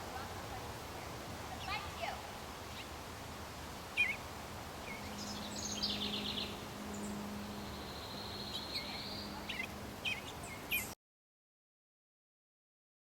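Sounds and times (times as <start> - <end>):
small birds chirping: 0.1 - 3.1, 3.7 - 11.0.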